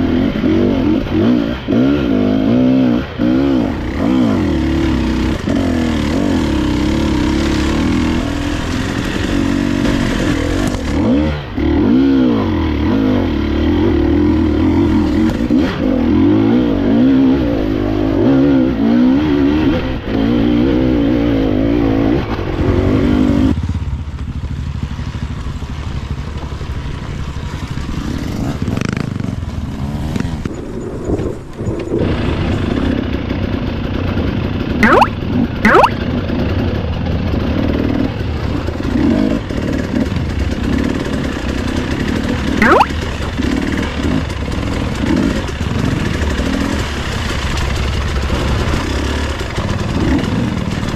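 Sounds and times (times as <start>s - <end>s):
dirt bike engine revving: 0.0s - 23.5s, 34.6s - 36.7s, 37.3s - 50.8s.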